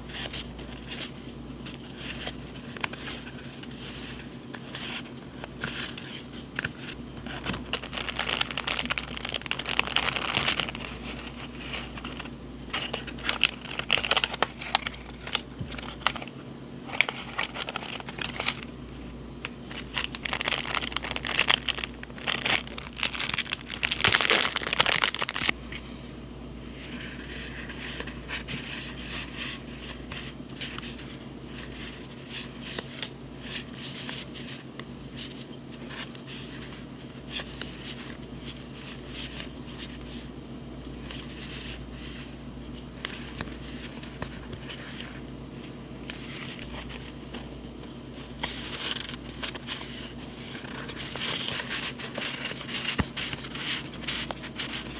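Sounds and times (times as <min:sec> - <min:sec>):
paper and packaging crinkling: 0:00.1 - 0:25.6, 0:46.0 - 0:54.9.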